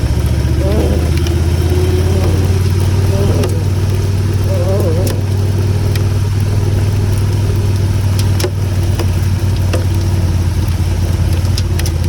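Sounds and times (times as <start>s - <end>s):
motorcycle engine humming: 0.0s - 12.0s.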